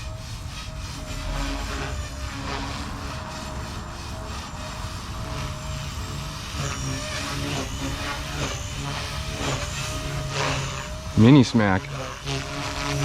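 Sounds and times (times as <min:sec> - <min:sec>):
low rumbling noise: 0:00.0 - 0:13.0
rc helicopter motor whine: 0:00.0 - 0:13.0.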